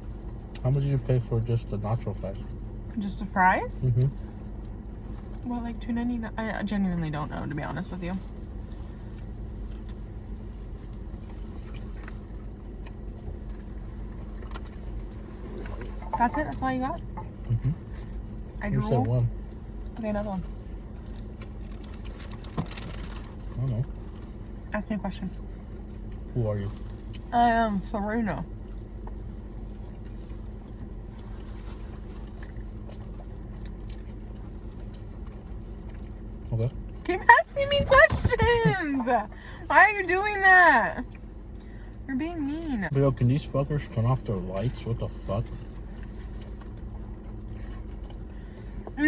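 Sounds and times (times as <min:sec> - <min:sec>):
car cabin hum: 0:00.0 - 0:49.0
person eating with smacks: 0:29.8 - 0:36.3.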